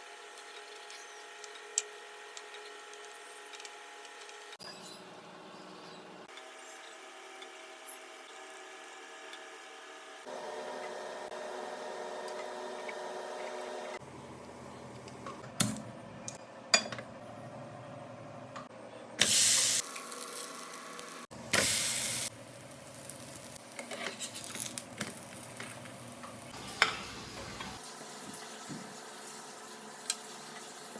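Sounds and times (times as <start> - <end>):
dumplings sizzling in a pan: 19.3 - 30.9.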